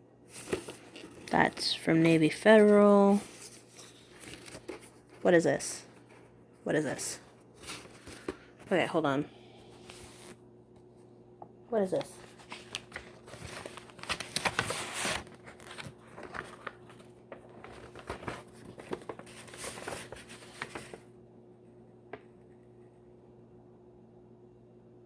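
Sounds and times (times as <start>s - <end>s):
paper rustling and crinkling: 0.3s - 6.4s, 7.4s - 8.7s, 11.8s - 21.1s.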